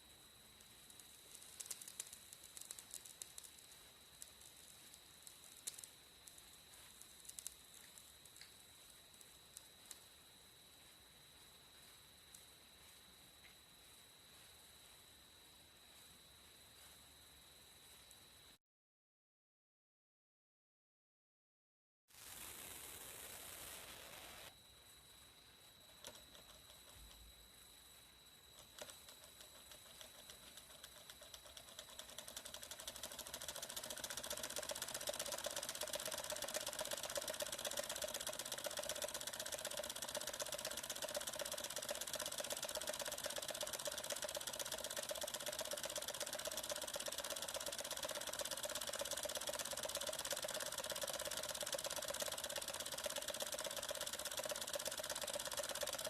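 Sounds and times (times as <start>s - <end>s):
small engine mechanical clatter: 0.6s - 8.5s, 25.9s - 27.3s, 28.6s - 56.0s.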